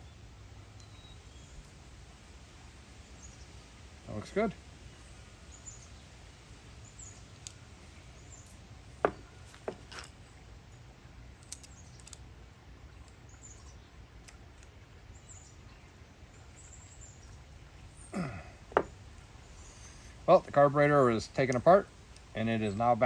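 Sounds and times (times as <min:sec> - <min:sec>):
low steady hum: 0:00.0 - 0:23.0
small metal parts clicking: 0:09.4 - 0:10.2, 0:11.4 - 0:12.3
faint bird chirps: 0:19.4 - 0:20.2.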